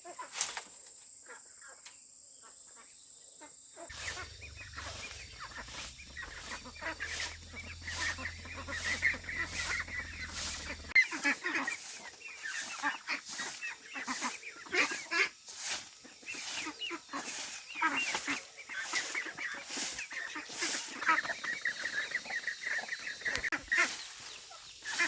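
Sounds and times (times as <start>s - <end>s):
chickens clucking: 3.8s - 25.0s
ducks honking: 3.8s - 25.0s
regular swishing beat: 3.9s - 21.0s.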